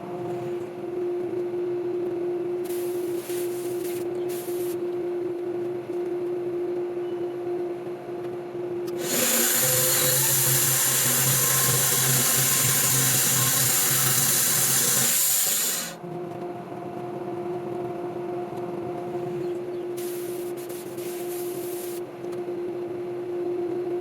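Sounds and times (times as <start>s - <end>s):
mill engine hum: 7.6s - 20.0s
saw blade rasping through log: 9.0s - 16.0s.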